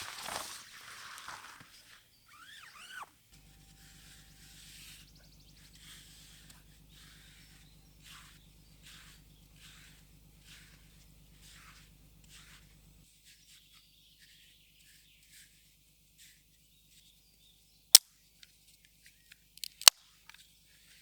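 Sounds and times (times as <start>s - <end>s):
faint high calls: 0.0s - 13.0s
squeaky animal call: 2.3s - 6.4s
low steady hum: 2.3s - 13.1s.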